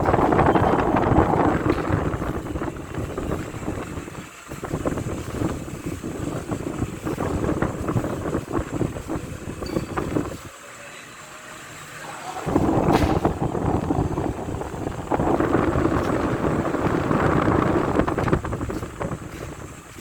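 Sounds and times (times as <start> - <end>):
fan air buffeting microphone: 0.0 - 20.0.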